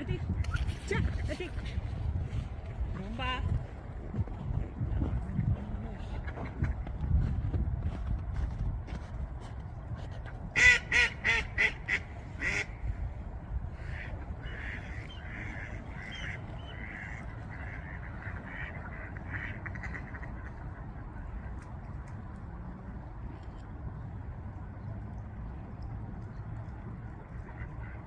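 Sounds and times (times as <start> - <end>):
duck quacking: 10.6 - 12.7.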